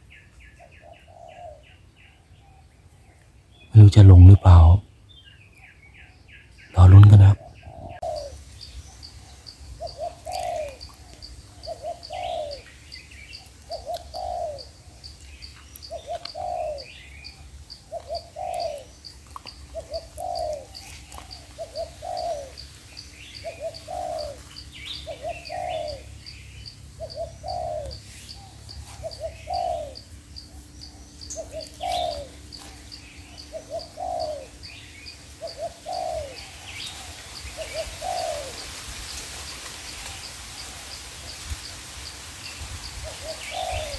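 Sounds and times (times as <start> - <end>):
doves cooing: 9.8 - 12.7, 13.6 - 14.7, 15.9 - 17.1, 17.8 - 26.2, 27.0 - 38.7, 43.0 - 43.9.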